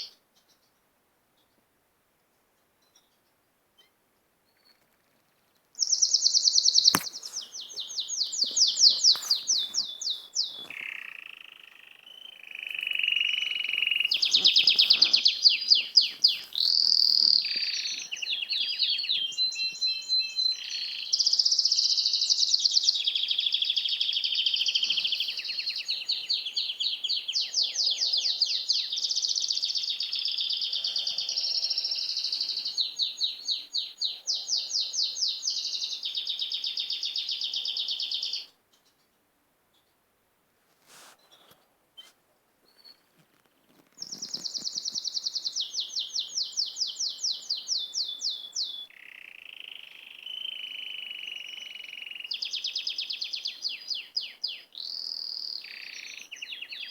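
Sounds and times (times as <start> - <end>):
songbird singing trills: 3.8 - 39.0, 44.0 - 56.9.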